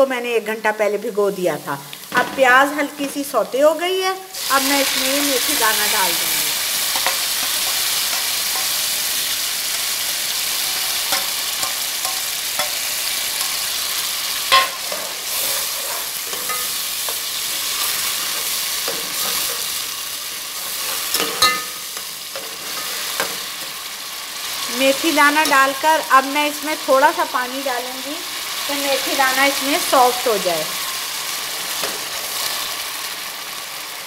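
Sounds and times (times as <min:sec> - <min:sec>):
food sizzling in hot oil: 0:00.0 - 0:34.0
metal spoon stirring: 0:06.9 - 0:08.9, 0:11.0 - 0:23.8
spoon clinking on pot: 0:21.1 - 0:21.8.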